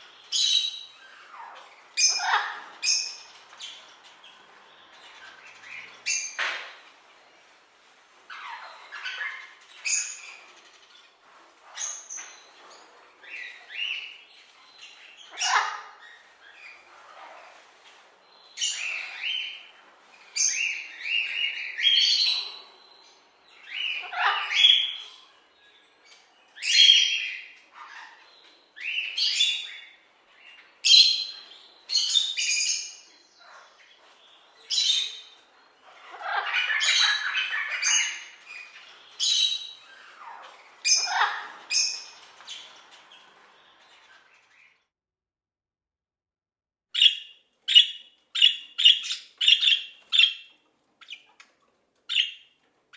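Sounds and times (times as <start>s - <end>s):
parrots squawking: 0.3s - 4.2s, 8.3s - 10.5s, 15.0s - 17.6s, 23.6s - 25.3s, 26.6s - 30.0s, 34.7s - 44.6s, 47.0s - 52.6s.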